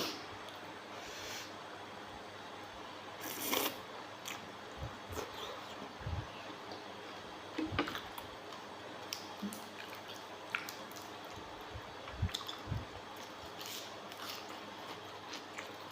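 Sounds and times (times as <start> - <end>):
wet chewing and smacking: 7.8 - 15.9.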